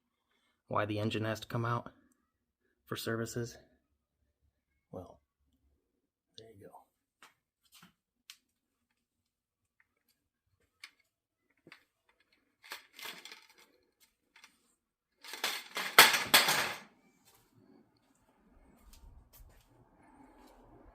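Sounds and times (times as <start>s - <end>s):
hard objects clinking and clattering: 11.6s - 14.6s, 15.2s - 16.9s.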